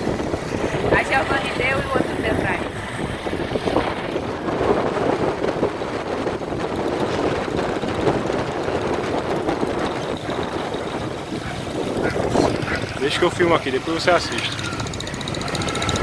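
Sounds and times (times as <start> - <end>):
moving vehicle rumbling: 0.0 - 16.0
wind buffeting microphone: 0.0 - 16.0.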